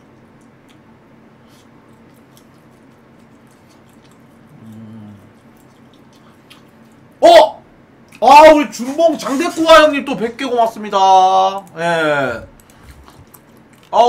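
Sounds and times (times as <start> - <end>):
man chewing quietly: 0.0 - 7.2, 12.4 - 14.0
low hum through closed lips: 0.0 - 8.2, 11.4 - 14.0
loud vocal exclamation: 7.2 - 7.6.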